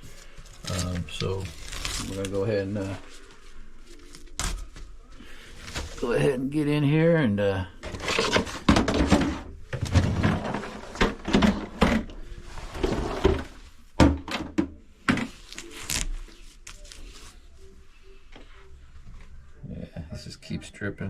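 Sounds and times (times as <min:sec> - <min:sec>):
knocks and clunks in sink cabinet: 0:14.0 - 0:15.2.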